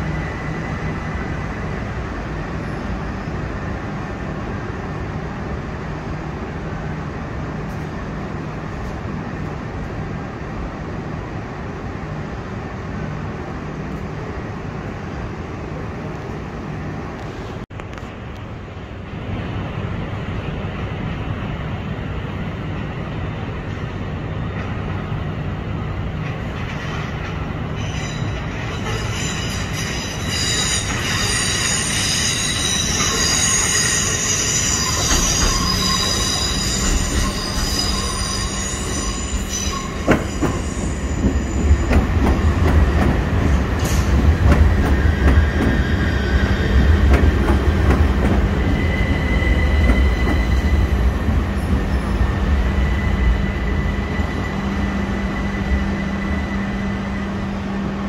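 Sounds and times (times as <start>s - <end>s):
train wheels rumbling: 17.0s - 58.0s
train wheels squealing: 26.6s - 57.6s.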